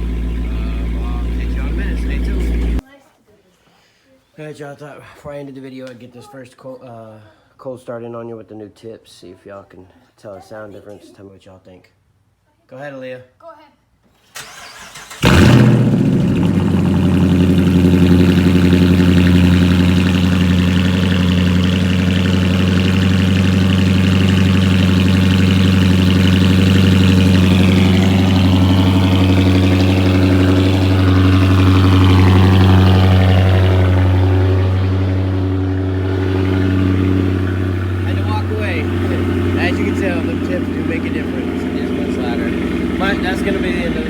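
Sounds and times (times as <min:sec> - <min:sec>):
car engine cold start and idling: 0:00.0 - 0:02.8, 0:14.3 - 0:44.0.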